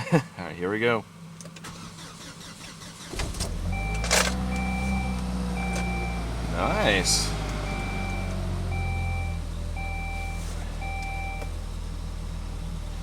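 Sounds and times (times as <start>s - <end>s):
car engine idling: 1.1s - 13.0s
dashboard warning chime beeps: 3.7s - 11.5s.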